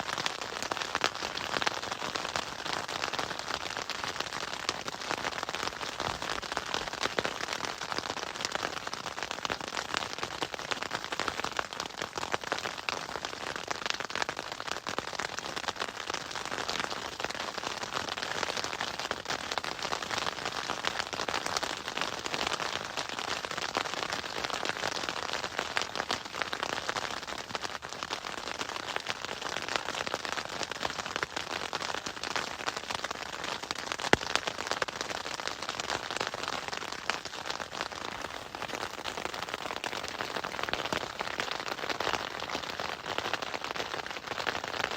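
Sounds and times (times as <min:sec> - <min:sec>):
hailstones pelting down: 0:33.9 - 0:44.9.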